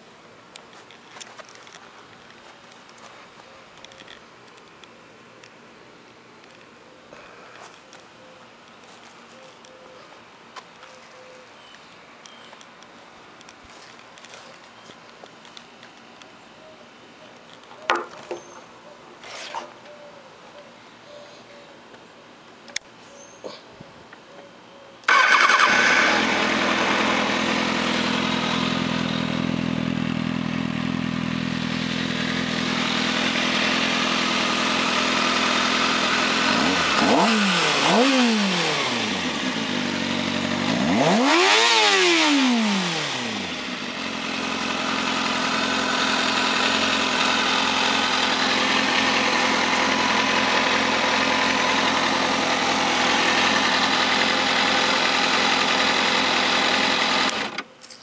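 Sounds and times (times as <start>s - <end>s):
motorcycle engine idling: 25.1s - 41.9s, 42.6s - 57.6s
engine revving: 25.1s - 57.6s.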